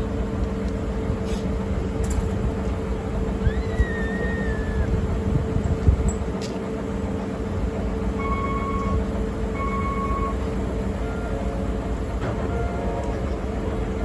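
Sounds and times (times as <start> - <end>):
diesel locomotive rumbling: 0.0 - 14.0.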